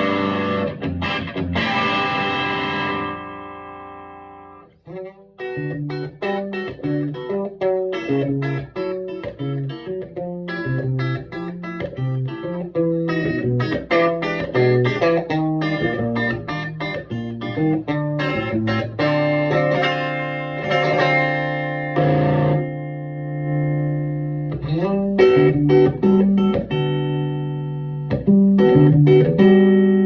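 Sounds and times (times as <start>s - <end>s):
electric guitar notes and chord: 0.0s - 30.0s.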